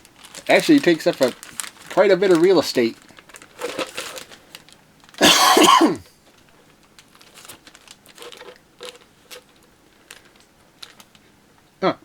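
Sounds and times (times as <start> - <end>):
plastic parts scraping and rustling: 0.1 - 4.8, 7.0 - 11.2.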